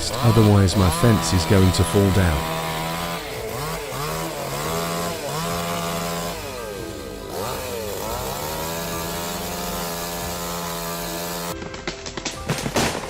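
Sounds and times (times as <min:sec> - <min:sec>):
chainsaw engine running: 0:00.0 - 0:11.7.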